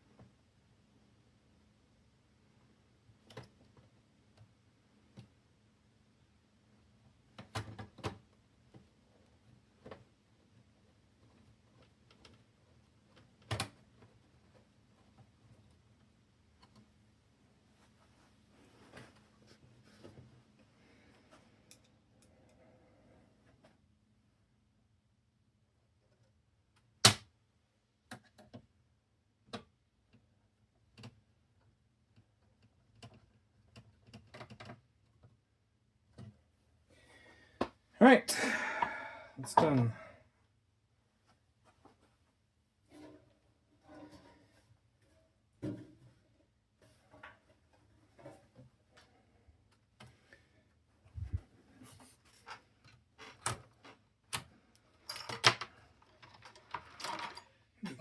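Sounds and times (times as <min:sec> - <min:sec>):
tools handled on a workbench: 0:51.2 - 0:57.6.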